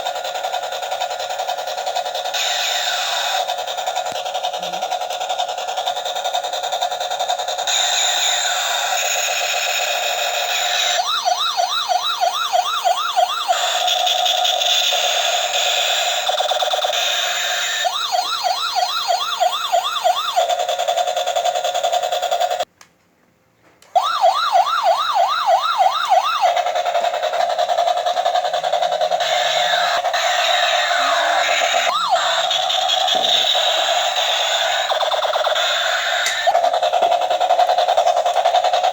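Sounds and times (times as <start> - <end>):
toy electronic siren: 0.0 - 22.7, 24.0 - 38.9.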